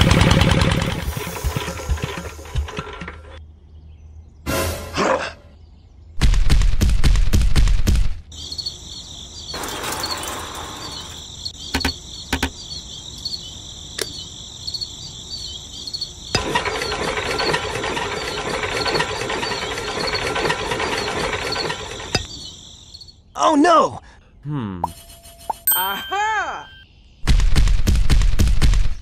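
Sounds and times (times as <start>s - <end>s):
high cricket-like chirring: 8.3s - 23.4s
rough mechanical whirring: 16.4s - 22.3s.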